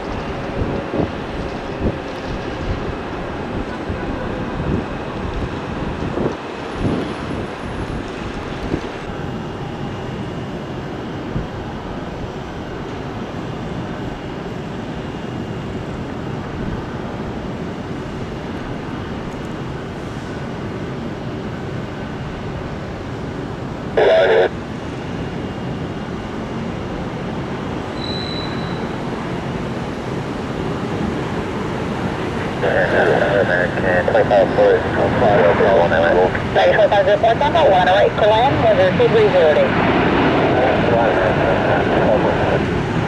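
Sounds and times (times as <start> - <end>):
wind on microphone: 0.0 - 9.2
jet engines rumbling: 0.0 - 43.0.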